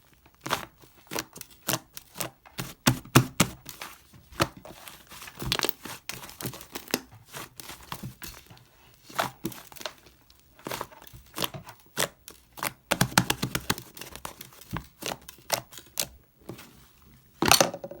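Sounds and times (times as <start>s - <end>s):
slime squishing sticky pops: 11.2s - 14.0s.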